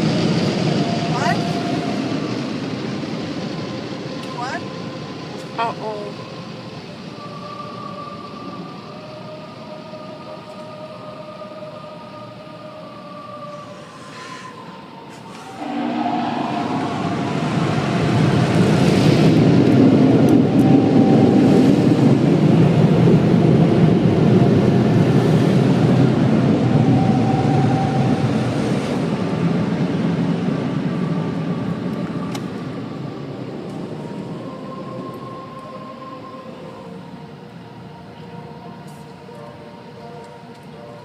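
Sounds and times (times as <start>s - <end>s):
car wash machinery rushing: 13.7s - 37.0s.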